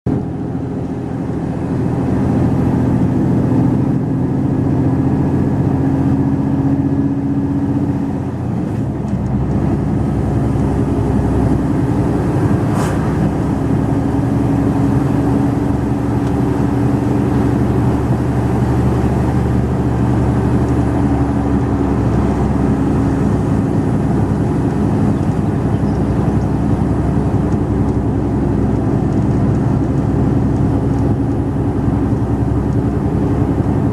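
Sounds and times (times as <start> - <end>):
truck diesel engine under load: 0.1 - 33.9.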